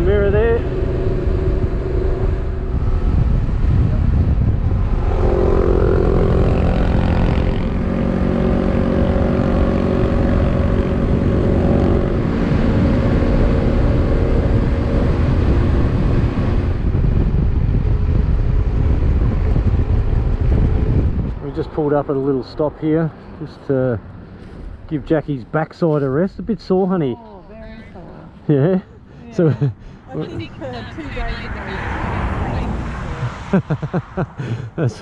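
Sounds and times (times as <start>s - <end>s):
motorcycle engine running: 0.0s - 21.4s
wind rushing past microphone: 0.0s - 23.4s, 27.5s - 35.0s.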